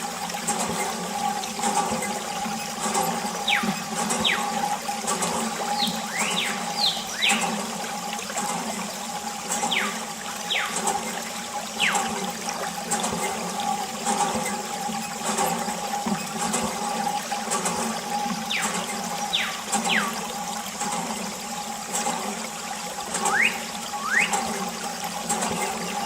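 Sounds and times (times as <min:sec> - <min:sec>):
pump hum: 0:00.0 - 0:26.0
water running and splashing: 0:00.0 - 0:26.0
quick high whistles: 0:23.3 - 0:24.4.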